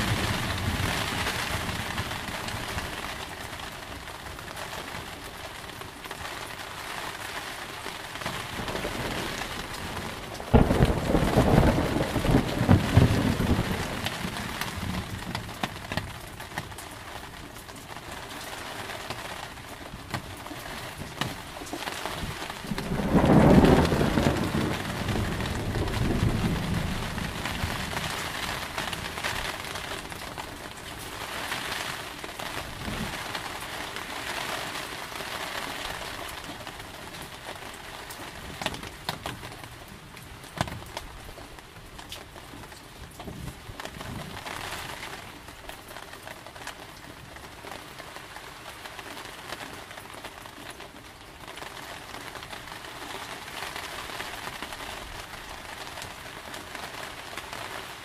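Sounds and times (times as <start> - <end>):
sharp raindrops tapping: 0.0 - 58.0
steady rain: 0.0 - 58.0
thunder rumble: 8.4 - 15.6, 22.1 - 29.9.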